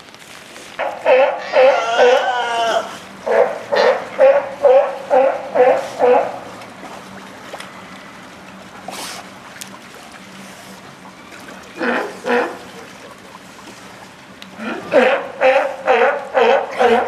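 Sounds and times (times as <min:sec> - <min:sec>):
background hum: 0:00.0 - 0:17.0
animal harsh calls: 0:00.8 - 0:06.5, 0:14.6 - 0:17.0.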